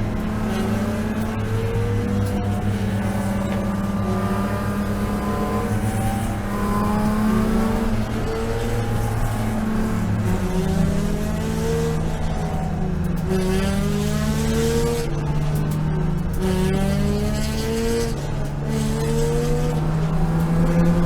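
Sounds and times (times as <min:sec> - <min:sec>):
race car engine at high revs: 0:00.0 - 0:21.0.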